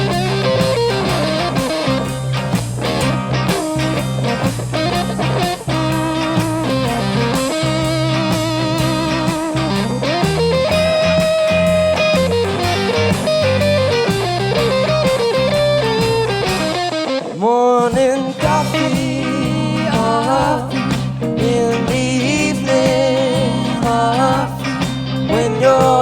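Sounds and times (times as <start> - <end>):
electric guitar solo: 0.0 - 26.0
rock band playing: 0.0 - 26.0.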